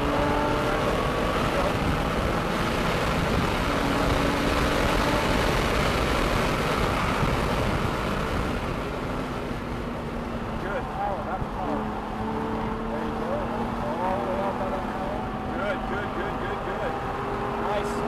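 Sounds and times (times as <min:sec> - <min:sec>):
wind noise: 0:00.0 - 0:10.4
car engine at speed: 0:00.0 - 0:18.0.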